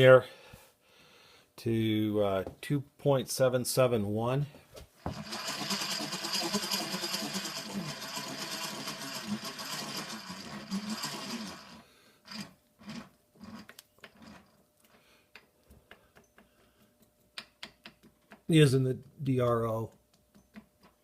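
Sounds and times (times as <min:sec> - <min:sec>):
milling machine gearing whirring: 0:05.1 - 0:13.1.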